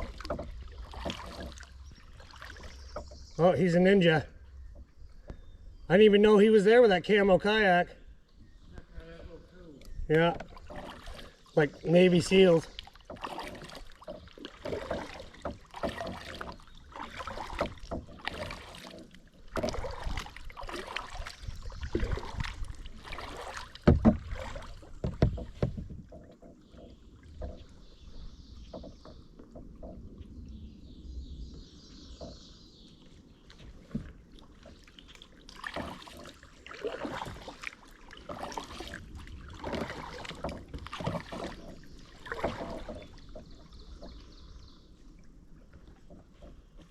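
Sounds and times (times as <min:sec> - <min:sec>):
kayak paddle splashing in water: 0:00.0 - 0:03.3, 0:10.1 - 0:30.0, 0:33.1 - 0:46.9.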